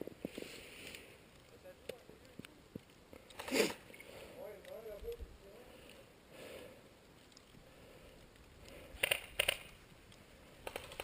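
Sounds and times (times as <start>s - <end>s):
faint outdoor noise: 0.0s - 11.0s
sharp clicks: 1.8s - 4.0s, 8.6s - 11.0s.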